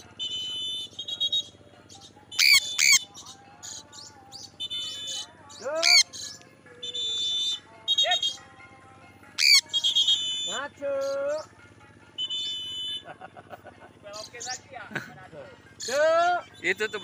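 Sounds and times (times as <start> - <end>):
high bird chirping: 0.0 - 8.5, 9.4 - 11.5, 14.1 - 14.8, 15.6 - 17.0
birds squawking: 0.0 - 8.6, 9.3 - 17.0.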